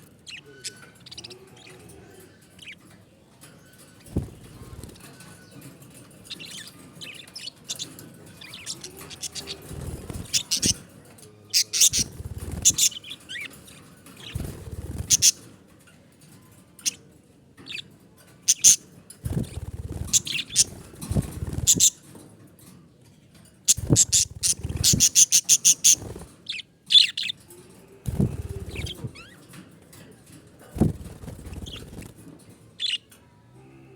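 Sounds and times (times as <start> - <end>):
budgerigars chirping: 0.2 - 1.8, 6.3 - 10.8, 11.5 - 13.6, 14.2 - 15.4, 18.5 - 18.8, 19.4 - 22.0, 23.7 - 27.4, 28.2 - 29.3.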